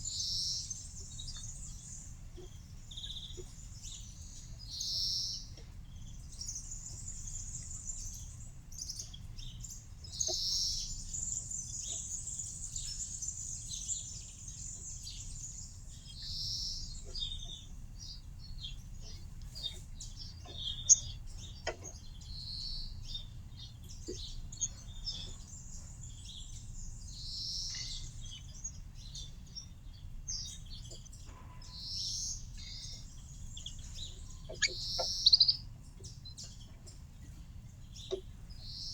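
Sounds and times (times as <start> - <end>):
low background noise: 0.0 - 38.9
songbirds chirping and trilling: 0.0 - 38.9.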